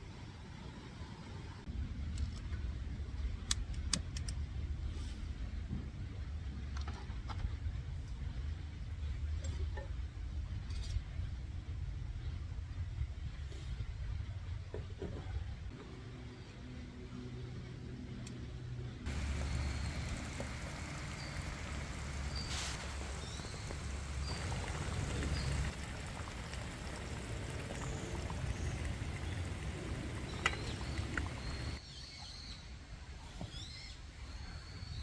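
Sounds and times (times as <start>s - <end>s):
outdoor rushing rumble: 19.1s - 31.8s
small birds chirping: 19.1s - 32.6s.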